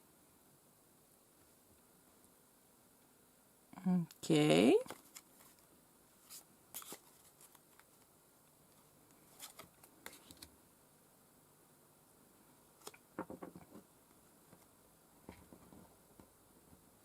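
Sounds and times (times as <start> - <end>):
cards rustling and tapping: 4.8 - 5.6, 6.2 - 8.1, 8.7 - 10.5, 12.8 - 13.9.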